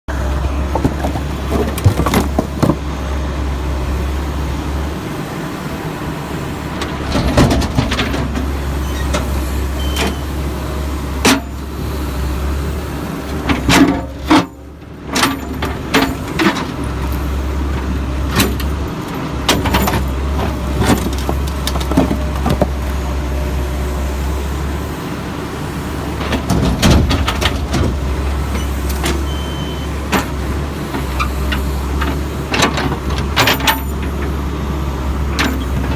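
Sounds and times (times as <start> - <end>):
diesel backhoe engine running: 0.1 - 35.9
concrete chunks clanking and crashing: 0.5 - 2.9.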